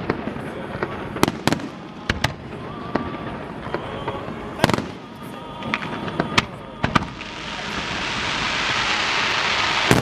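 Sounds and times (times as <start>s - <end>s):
fireworks bangs: 0.0s - 10.0s
fireworks hiss: 4.6s - 10.0s.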